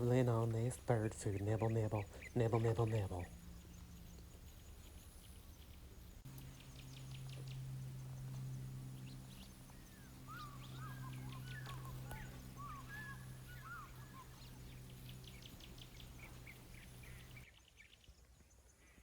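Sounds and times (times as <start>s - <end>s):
birds calling and chirping: 0.0s - 17.5s
steady low hum: 0.0s - 17.5s.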